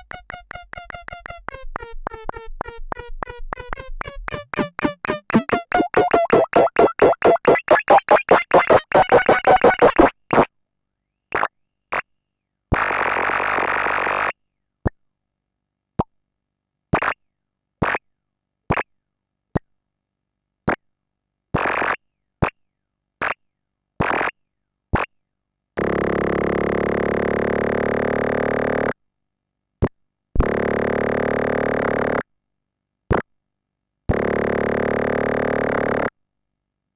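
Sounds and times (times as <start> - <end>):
buzzy synthesizer tone: 0.0 - 10.2
synthesizer blips and bursts: 0.0 - 10.2.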